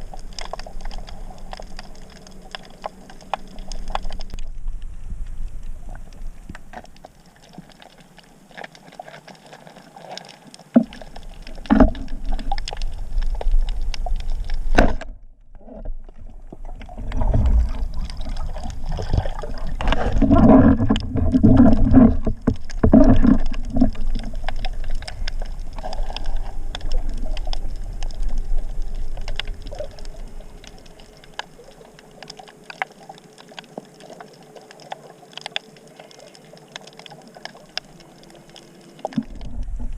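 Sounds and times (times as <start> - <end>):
water rushing and sloshing: 0.0 - 39.9.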